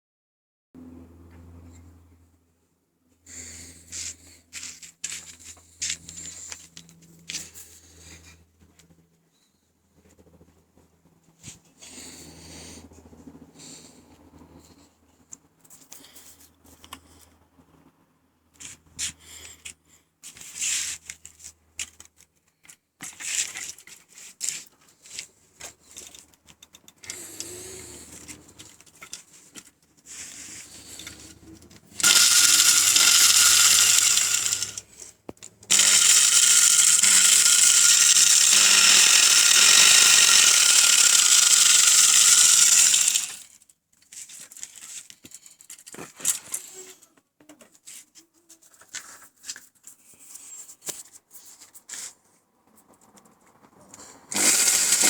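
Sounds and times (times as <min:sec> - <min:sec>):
angle grinder high whine: 0:32.0 - 0:35.0, 0:35.7 - 0:43.4, 0:54.3 - 0:55.0.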